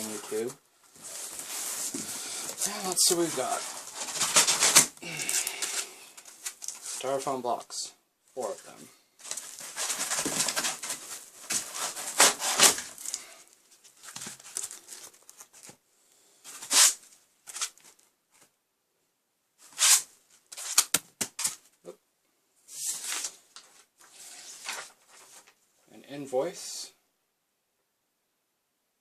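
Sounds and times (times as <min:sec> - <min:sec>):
styrofoam packaging rustling: 0:00.0 - 0:07.3, 0:08.4 - 0:15.8.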